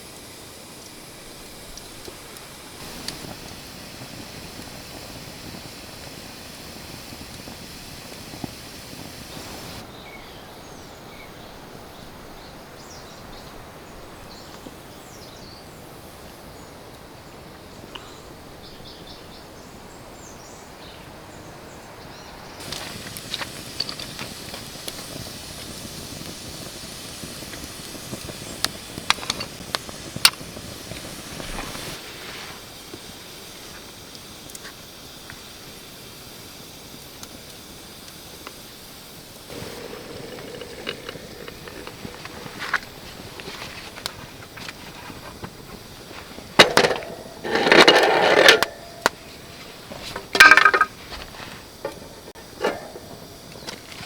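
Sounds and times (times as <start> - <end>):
campfire crackling: 0.0 - 9.9, 22.5 - 54.0
steady hiss: 0.0 - 54.0
fire pops and snaps: 0.8 - 9.8, 22.6 - 35.5, 36.9 - 54.0.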